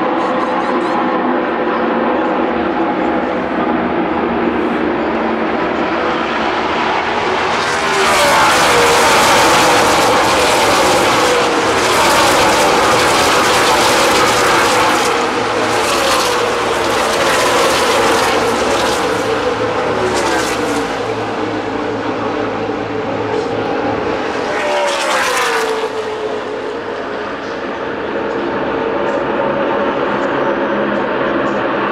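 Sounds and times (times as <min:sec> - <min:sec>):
race cars passing at speed: 0:00.0 - 0:31.9.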